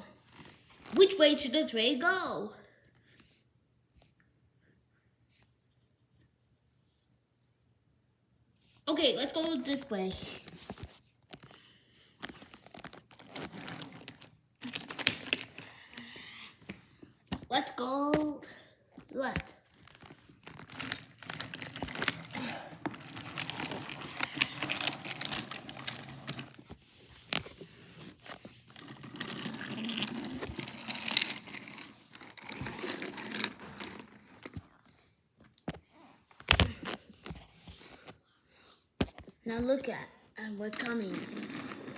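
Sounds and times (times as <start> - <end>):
rustling crinkling handling noise: 9.9 - 15.6, 19.0 - 38.2
toy pieces clicking and clattering: 12.3 - 16.2, 19.3 - 34.8, 40.7 - 41.9.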